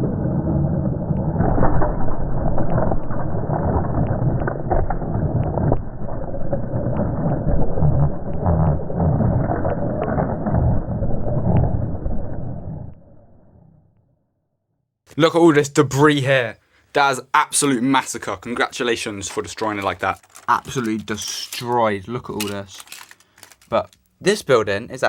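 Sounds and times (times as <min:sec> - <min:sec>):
plastic bricks clicking: 0:19.2 - 0:24.1.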